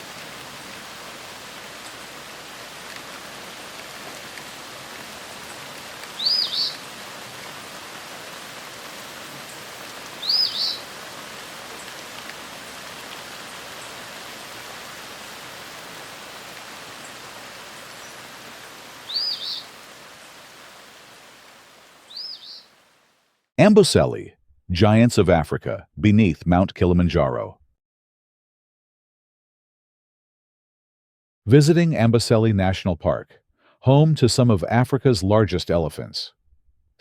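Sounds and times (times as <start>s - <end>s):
outdoor ambience hiss: 0.0s - 24.2s
bird double call: 10.2s - 10.8s.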